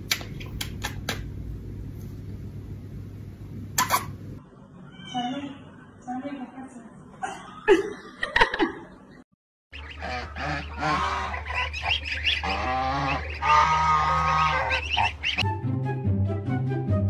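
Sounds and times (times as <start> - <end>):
steady low hum: 0.0 - 4.8
honking animal calls: 9.8 - 15.4.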